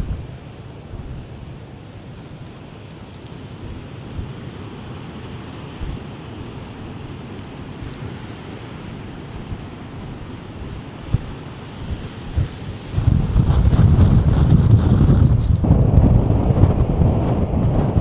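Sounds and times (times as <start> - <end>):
wind buffeting microphone: 0.0 - 2.2, 3.0 - 18.0
sea surf: 0.0 - 18.0.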